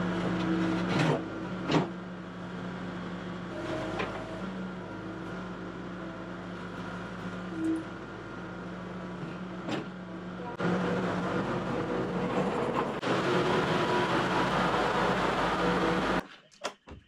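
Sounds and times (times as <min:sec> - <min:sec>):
skid steer engine running: 0:00.0 - 0:16.3.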